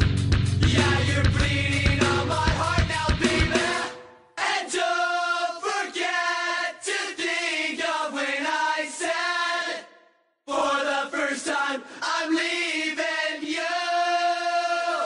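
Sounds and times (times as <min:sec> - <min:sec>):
rock music: 0:00.0 - 0:04.1
choir singing held chords: 0:00.6 - 0:15.0.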